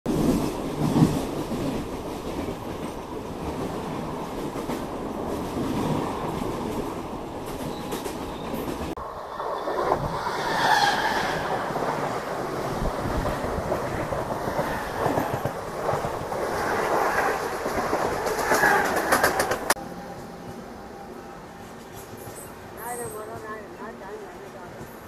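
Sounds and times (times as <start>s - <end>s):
train wheels clattering over rail joints: 13.2s - 19.8s.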